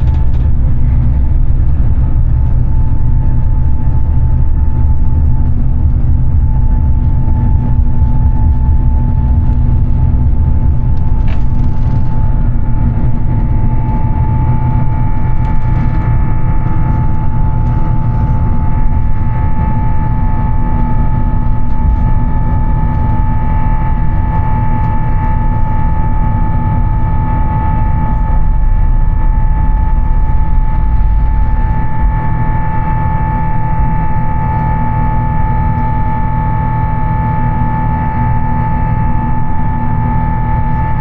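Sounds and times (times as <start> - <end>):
jet engines heard from cabin: 0.0 - 41.0.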